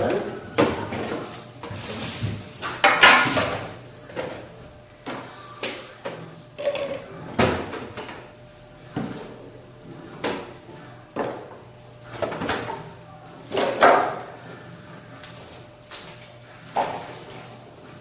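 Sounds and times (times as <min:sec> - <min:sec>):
dishes knocking and clinking: 0:02.8 - 0:03.5.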